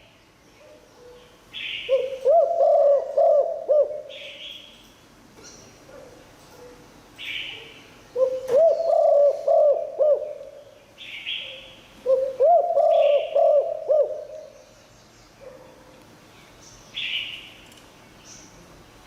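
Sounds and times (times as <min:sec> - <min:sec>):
dove cooing: 0:01.9 - 0:04.4, 0:08.2 - 0:10.6, 0:12.0 - 0:14.6.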